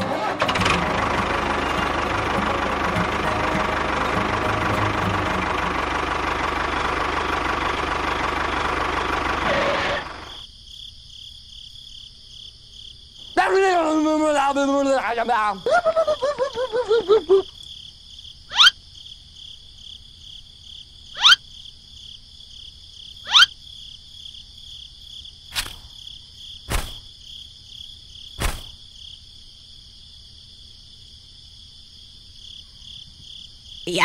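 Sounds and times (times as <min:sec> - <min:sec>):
crickets chirring: 0:05.0 - 0:34.0
person speaking: 0:13.4 - 0:17.3.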